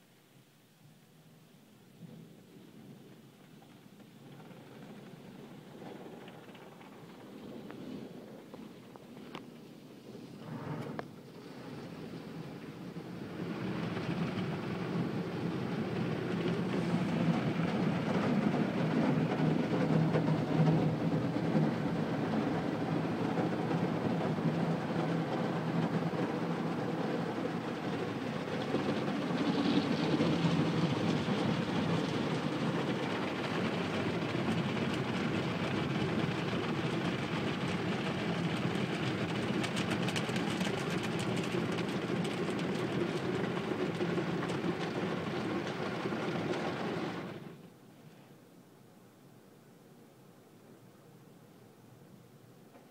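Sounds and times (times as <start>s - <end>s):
car wash machinery rumble: 10.2s - 47.7s.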